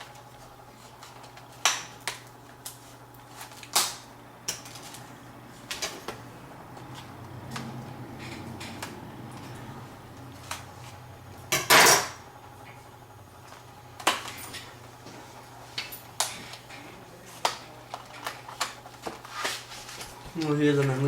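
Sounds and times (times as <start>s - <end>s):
low steady hum: 0.0s - 19.2s.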